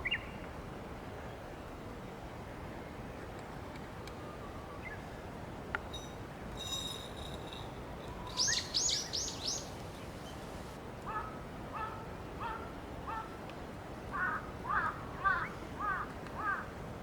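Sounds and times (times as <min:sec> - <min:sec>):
wind rumble: 0:05.9 - 0:10.8
wild birds calling: 0:06.7 - 0:13.3.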